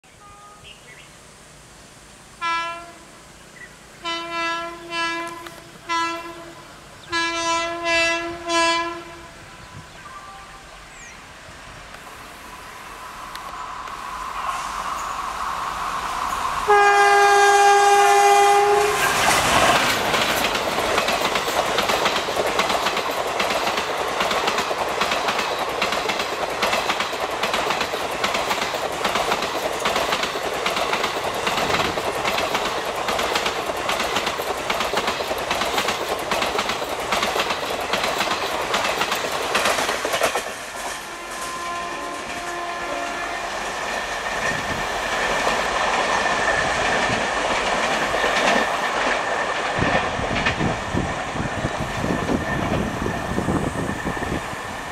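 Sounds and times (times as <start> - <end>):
locomotive horn: 2.4 - 3.1, 4.0 - 10.7, 16.6 - 19.3, 40.9 - 43.7
train rushing past: 2.7 - 54.9
wheels clacking over rail joints: 18.6 - 41.6, 43.7 - 54.2.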